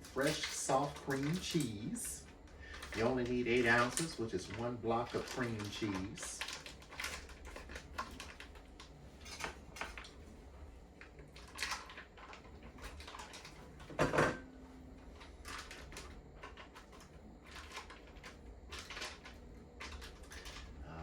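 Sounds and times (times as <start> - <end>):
packaging and utensil clicks: 2.7 - 10.1.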